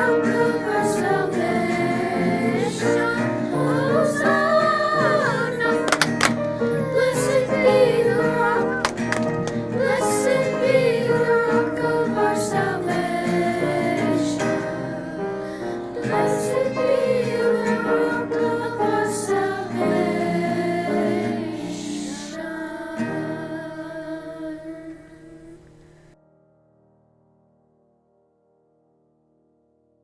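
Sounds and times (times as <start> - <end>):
instrumental accompaniment: 0.0 - 21.6
voices singing: 0.0 - 26.2.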